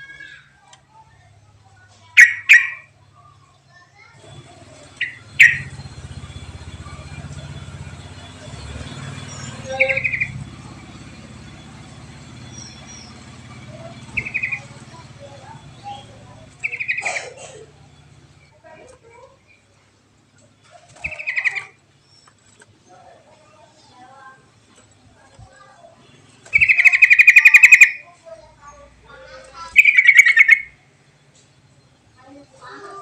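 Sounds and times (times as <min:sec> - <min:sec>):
bird calling sharp notes: 0:02.2 - 0:02.9, 0:04.8 - 0:18.5, 0:20.9 - 0:21.8, 0:26.4 - 0:28.1, 0:29.6 - 0:30.8
bird rattling trills: 0:02.2 - 0:02.9, 0:04.2 - 0:19.6, 0:20.4 - 0:22.9, 0:24.6 - 0:28.1, 0:29.2 - 0:30.8.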